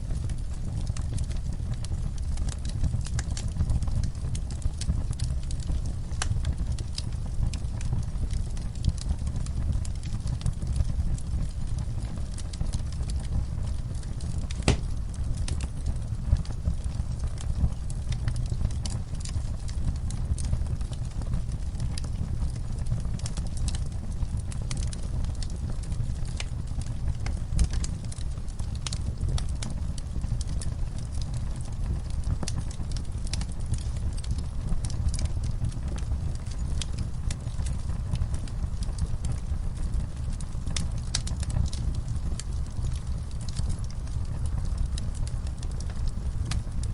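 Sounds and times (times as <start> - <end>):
fire crackling: 0.0 - 46.9
low rumble of flames: 0.0 - 46.9
loud fire pop: 14.6 - 15.0.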